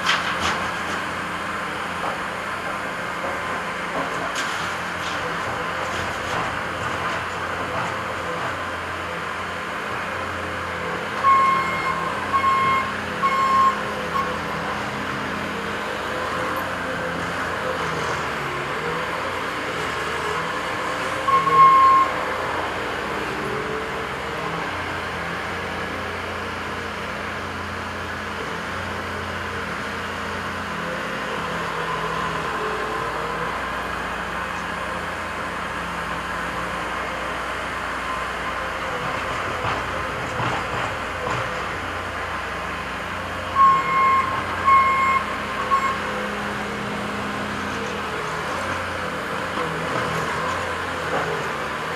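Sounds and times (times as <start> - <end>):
diesel machinery running: 0.0 - 51.9
reversing alarm beeping: 11.2 - 14.4, 21.2 - 22.2, 43.6 - 46.1.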